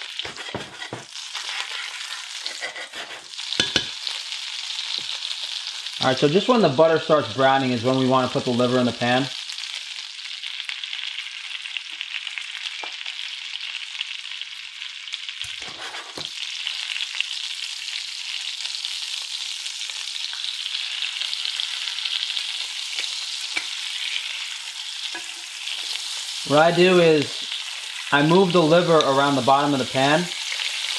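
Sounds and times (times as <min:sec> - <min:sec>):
liver sizzling in butter: 0:00.0 - 0:30.9
pan knocking on cooktop: 0:03.6 - 0:04.0.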